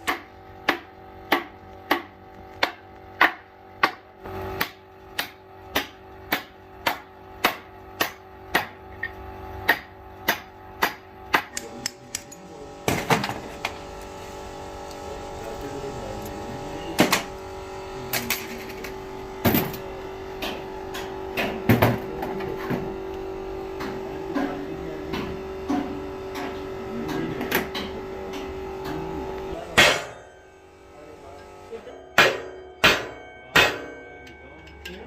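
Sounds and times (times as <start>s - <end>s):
steady humming tone: 0.0s - 35.0s
hammer striking metal: 29.7s - 30.5s, 31.8s - 35.0s.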